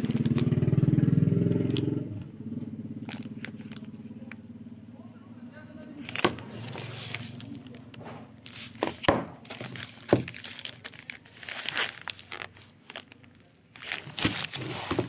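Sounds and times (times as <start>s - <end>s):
crinkling and rustling: 0.0s - 0.7s, 3.0s - 4.4s, 6.0s - 15.0s.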